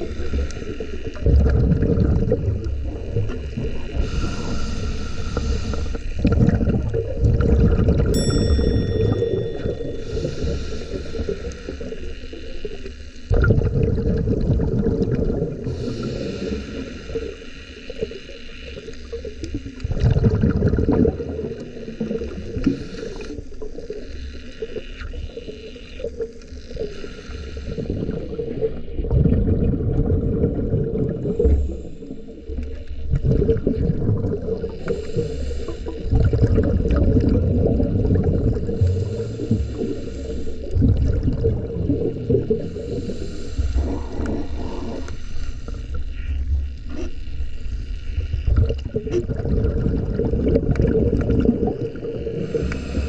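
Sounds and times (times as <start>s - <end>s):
bubbles gurgling underwater: 0.0s - 4.6s, 5.6s - 8.4s, 13.3s - 17.2s, 19.1s - 23.2s, 27.7s - 31.9s, 32.6s - 45.1s, 48.2s - 53.0s
murmur of water: 0.0s - 53.0s.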